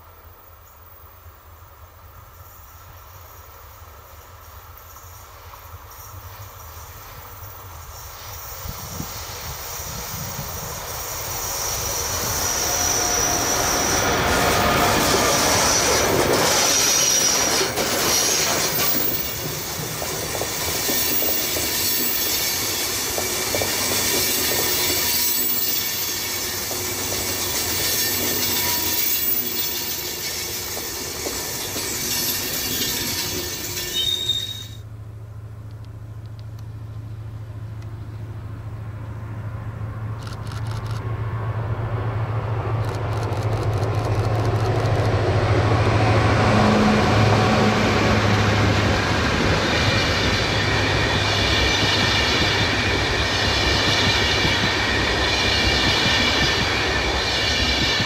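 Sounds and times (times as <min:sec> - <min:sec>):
train passing at speed: 0:00.0 - 0:58.0
wheels clattering on rail: 0:13.8 - 0:34.8, 0:48.0 - 0:58.0.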